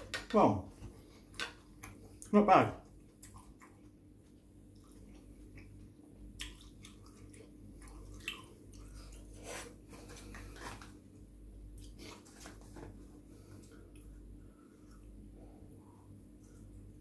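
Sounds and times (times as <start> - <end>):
faint chewing: 0.7 - 11.0, 13.3 - 17.0.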